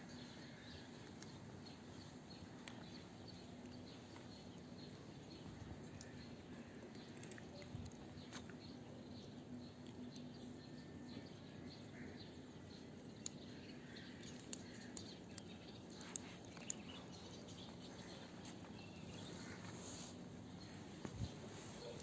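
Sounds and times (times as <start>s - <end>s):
low background hum: 0.0s - 22.0s
small birds chirping: 0.0s - 22.0s
sharp light ticks: 13.2s - 17.0s.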